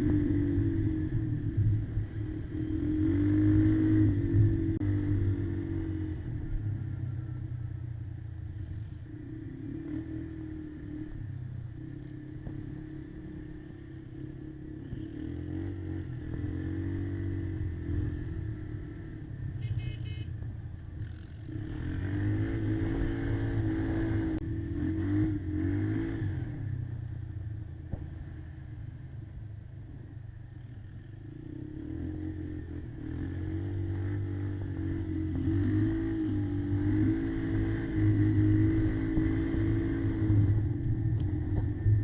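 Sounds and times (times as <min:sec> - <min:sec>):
quad engine revving: 0:21.5 - 0:26.4, 0:31.6 - 0:40.6.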